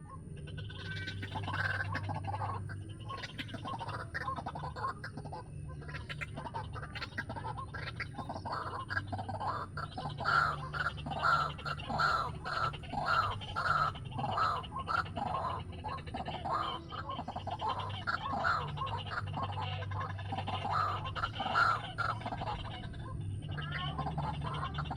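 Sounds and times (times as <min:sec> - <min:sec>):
steady low hum: 0:00.0 - 0:24.9
waterhen harsh calls: 0:00.6 - 0:24.9.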